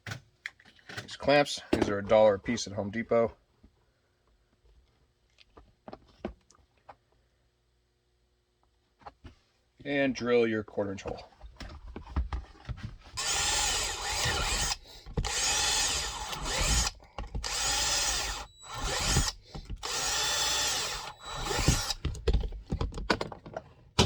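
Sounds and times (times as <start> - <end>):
power drill boring holes: 13.2 - 22.3
handling clicks and knocks: 21.7 - 23.7.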